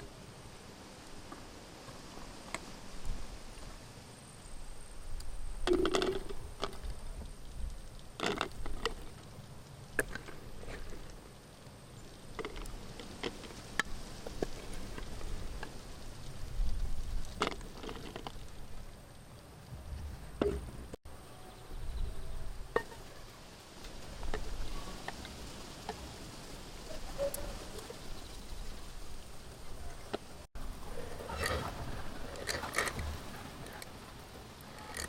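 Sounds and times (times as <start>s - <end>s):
low rumble: 19.6s - 21.0s.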